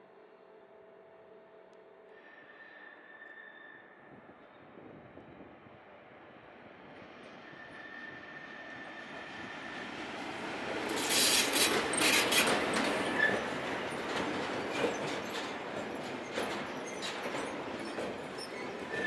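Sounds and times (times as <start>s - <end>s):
freight train passing: 0.0s - 19.0s
wheel-on-rail clicks: 10.9s - 13.4s.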